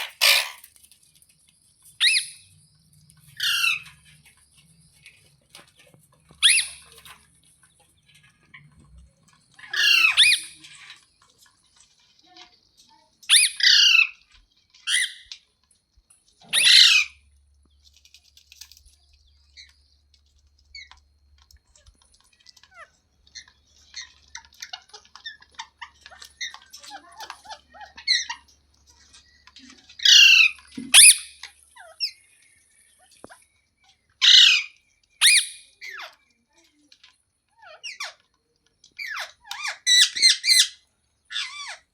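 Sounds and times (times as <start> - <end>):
parakeet squawking: 0.0 - 0.7, 3.4 - 3.9, 6.4 - 7.0, 9.6 - 10.6, 13.3 - 14.1, 16.5 - 17.2, 30.0 - 32.2, 34.2 - 36.1, 39.0 - 41.9
parakeet soft chirps: 6.4 - 7.0, 29.2 - 36.2.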